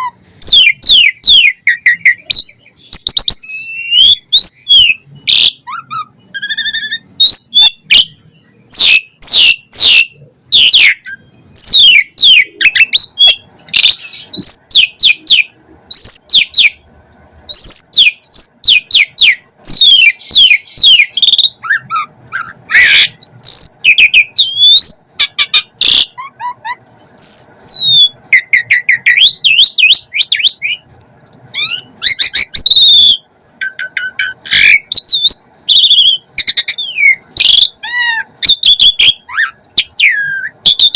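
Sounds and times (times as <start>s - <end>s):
starling singing whistles and clicks: 0.0s - 16.8s, 17.5s - 37.8s, 38.4s - 40.9s.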